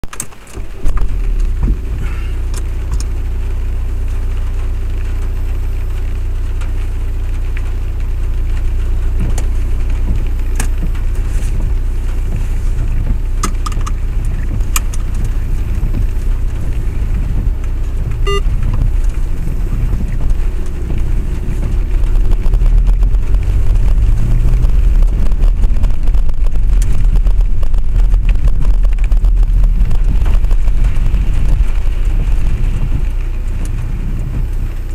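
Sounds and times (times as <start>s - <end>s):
sharp clicks: 0.0s - 1.7s
vehicle engine low rumble: 0.0s - 34.9s.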